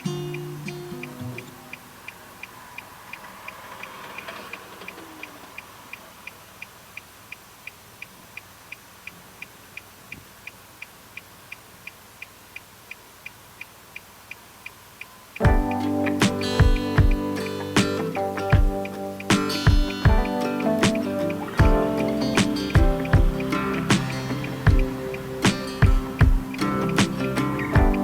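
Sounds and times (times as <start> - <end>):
turn signal ticking: 0.0 - 28.0.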